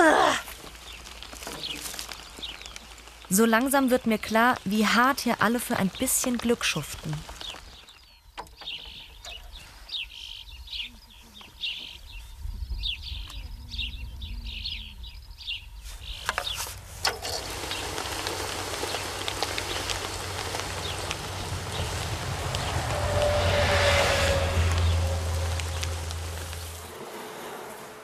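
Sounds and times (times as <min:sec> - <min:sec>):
small bird chirping: 0:04.2 - 0:16.7
low outdoor rumble: 0:08.6 - 0:28.0
steady rushing noise: 0:17.4 - 0:28.0.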